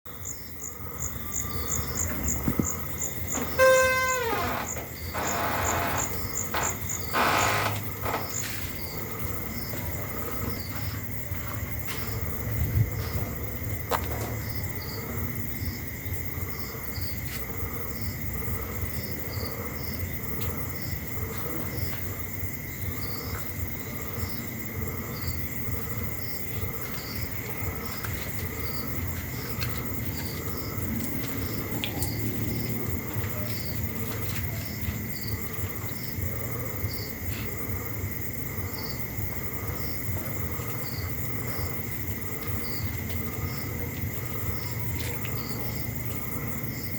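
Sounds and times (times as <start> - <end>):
insects chirping: 0.1 - 46.9
loud call falling in pitch: 3.4 - 4.6
brief noisy bursts: 3.4 - 8.2.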